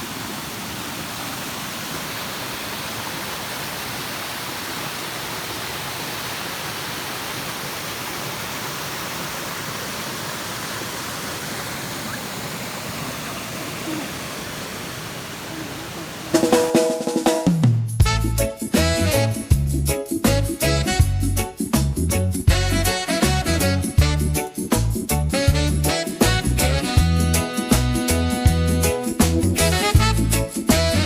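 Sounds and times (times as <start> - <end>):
waterfall rushing: 0.0 - 16.8
music with drums: 16.4 - 31.0.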